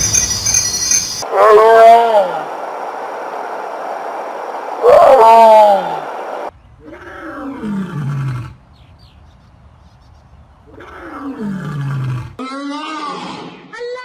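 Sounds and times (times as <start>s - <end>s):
big cat roaring: 6.8s - 8.6s, 10.7s - 12.4s.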